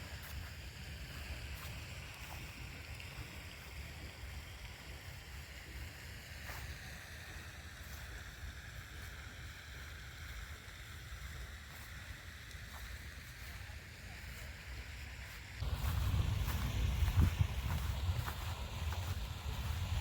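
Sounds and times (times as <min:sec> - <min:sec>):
wind rumble on microphone: 0:15.6 - 0:20.0.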